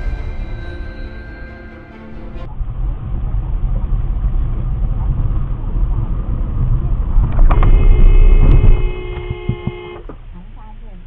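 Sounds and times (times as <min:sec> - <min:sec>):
vehicle driving rumble: 0:00.0 - 0:11.0
long car horn blast: 0:07.5 - 0:10.1.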